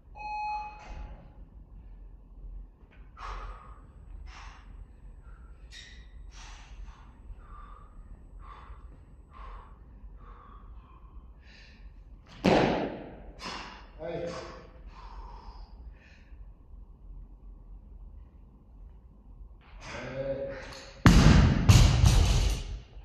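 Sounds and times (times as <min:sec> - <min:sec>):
person breathing hard: 0:03.1 - 0:12.2, 0:13.2 - 0:16.6
loud thud: 0:12.4 - 0:13.1, 0:21.0 - 0:22.7.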